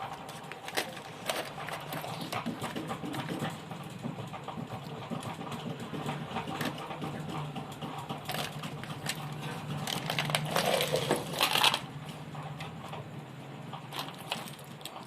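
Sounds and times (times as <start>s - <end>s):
tools clattering: 0.0s - 3.7s, 4.4s - 11.9s.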